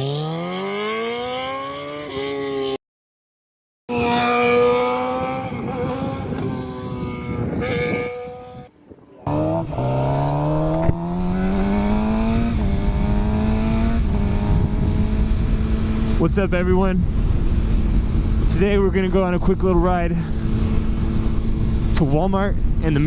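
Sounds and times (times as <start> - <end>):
motorcycle engine: 0.0 - 2.8, 3.9 - 23.0.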